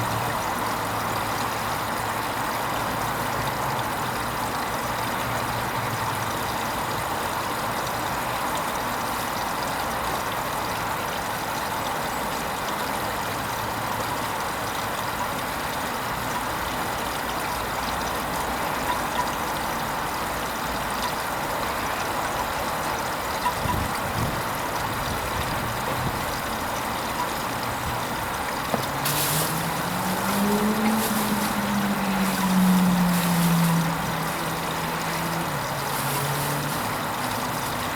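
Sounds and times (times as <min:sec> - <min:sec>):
water rushing in washing machine: 0:00.0 - 0:37.9
motor hum rising in pitch: 0:29.3 - 0:37.9.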